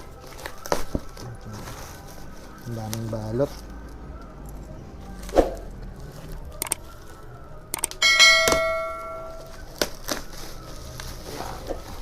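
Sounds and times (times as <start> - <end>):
metal tube ringing when struck: 8.0 - 9.6.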